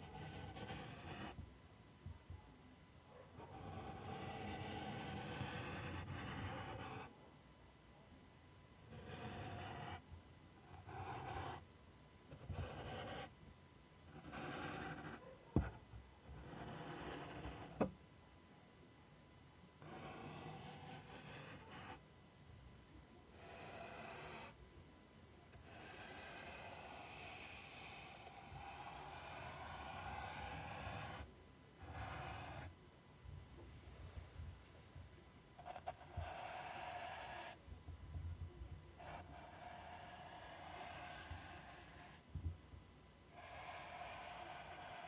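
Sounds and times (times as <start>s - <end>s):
rasping scratches across surface: 43.4s - 45.0s.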